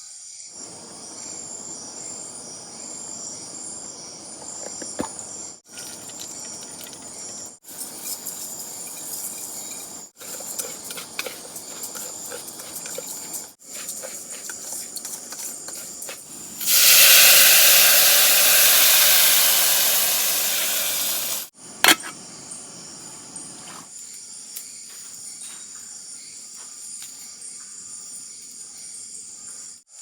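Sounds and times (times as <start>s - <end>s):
high-pitched insect calls: 0.3s - 29.8s
food sizzling in hot oil: 7.6s - 21.5s.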